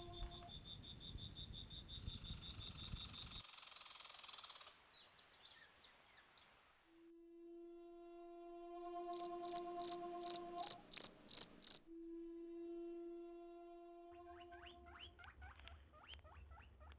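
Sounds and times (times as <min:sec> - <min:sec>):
soft music: 0:00.0 - 0:00.5, 0:07.0 - 0:15.3
insect chirping in fast pulse: 0:00.0 - 0:04.9, 0:08.8 - 0:11.9
high insect hiss: 0:00.0 - 0:05.3, 0:08.7 - 0:11.9.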